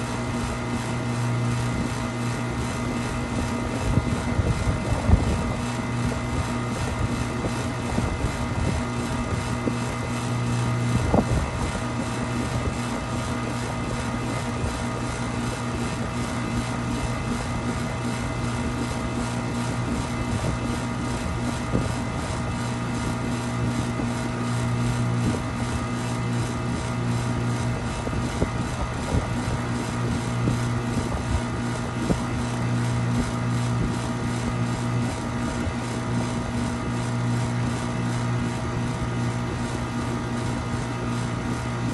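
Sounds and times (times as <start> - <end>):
machine humming: 0.0 - 41.9.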